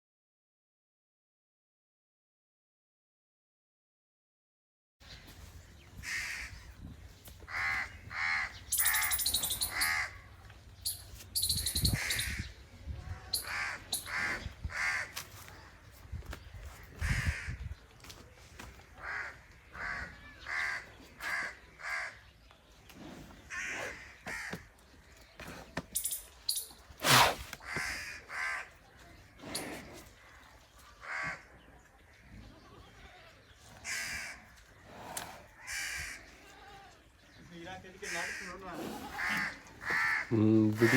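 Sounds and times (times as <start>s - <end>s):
birds making harsh calls: 5.0s - 17.8s, 18.6s - 40.9s
squeaky bird chirps: 8.6s - 10.2s, 10.8s - 12.5s, 13.3s - 14.3s, 25.9s - 26.8s.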